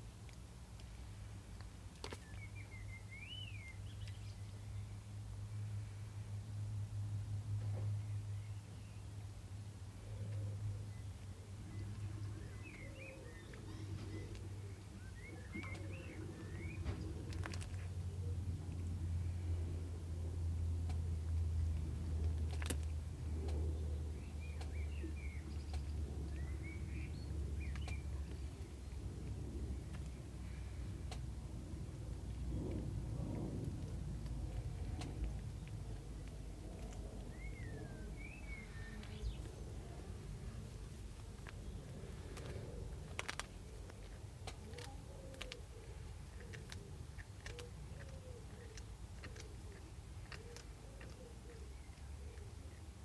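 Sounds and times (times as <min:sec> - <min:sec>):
steady low hum: 0:00.0 - 0:53.0
small bird chirping: 0:10.1 - 0:17.9, 0:23.5 - 0:29.0, 0:34.7 - 0:46.9
sharp clicks: 0:31.0 - 0:31.3
animal chewing crunchy snack: 0:32.4 - 0:52.8.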